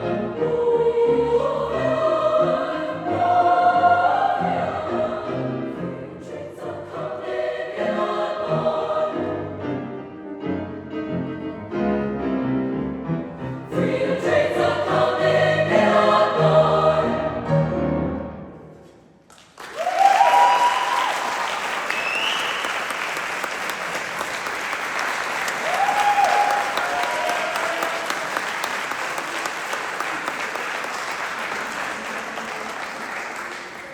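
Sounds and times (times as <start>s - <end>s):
choir singing in harmony: 0.0s - 10.7s, 13.4s - 18.6s
audience applauding and cheering: 19.3s - 33.9s
audience whoops: 19.6s - 23.3s, 25.5s - 28.7s.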